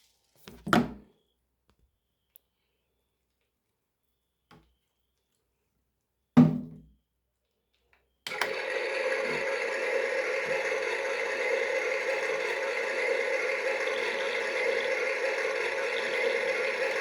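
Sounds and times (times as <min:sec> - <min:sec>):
toy motor whirring: 0:08.3 - 0:17.0.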